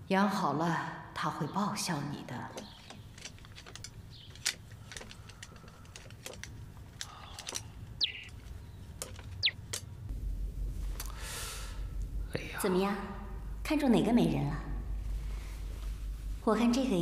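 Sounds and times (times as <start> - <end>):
bird chirps sliding downward: 8.0 - 8.3.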